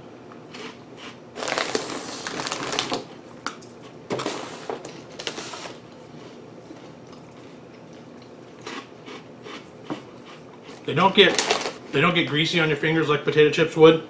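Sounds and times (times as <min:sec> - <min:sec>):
crunching of crisps being chewed: 0:00.5 - 0:03.2, 0:04.9 - 0:11.8.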